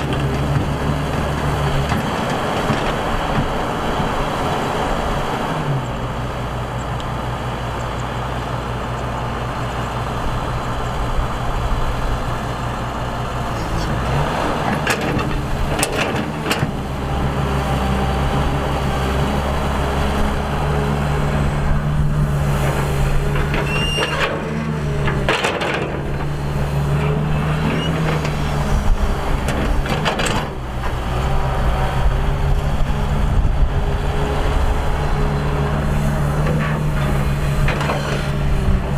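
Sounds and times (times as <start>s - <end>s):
excavator diesel engine: 0.0s - 38.9s
high squeal: 23.5s - 24.4s.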